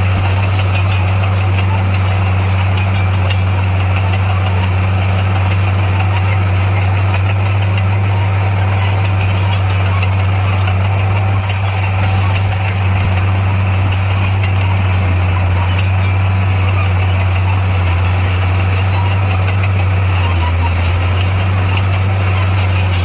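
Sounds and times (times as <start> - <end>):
heavy diesel engine droning: 0.0 - 23.0.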